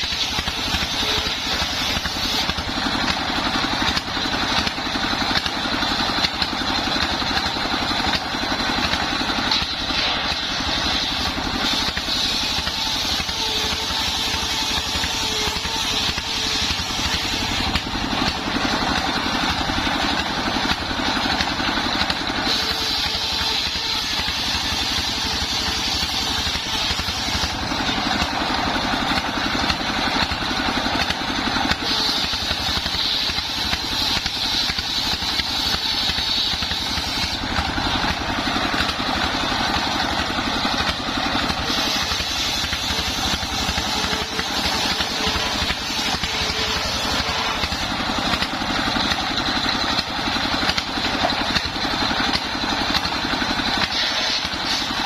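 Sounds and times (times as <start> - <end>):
circular saw sawing wood: 0.0 - 55.0
high whine: 36.6 - 48.7.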